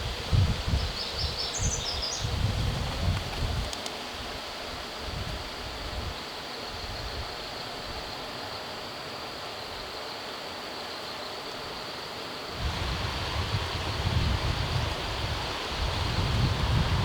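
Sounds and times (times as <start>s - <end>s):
wind rumble on microphone: 0.0s - 8.1s, 12.5s - 17.0s
steady outdoor hiss: 0.0s - 17.0s.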